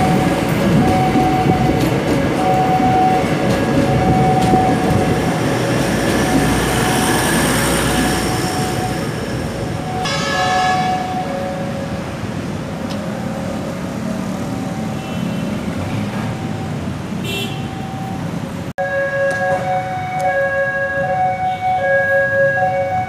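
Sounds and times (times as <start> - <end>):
level crossing warning alarm: 0.0 - 12.1, 18.8 - 23.0
wheels clacking on rails: 0.0 - 16.9
diesel train passing: 0.0 - 17.2
train horn blast: 10.0 - 11.4.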